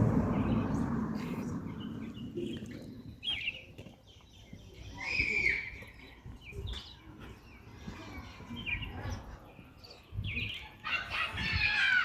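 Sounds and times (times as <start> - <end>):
birds chirping: 0.0 - 12.0
footsteps on a trail: 2.9 - 10.6.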